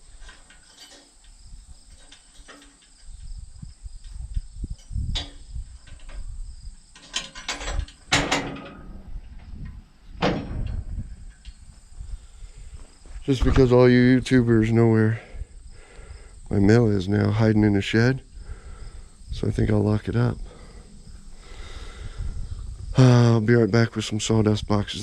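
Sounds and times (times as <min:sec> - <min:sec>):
low rumbling handling noise: 0:00.0 - 0:15.8, 0:16.5 - 0:24.3
crickets chirping: 0:00.0 - 0:25.0
sharp knocks and clatters: 0:06.9 - 0:09.0.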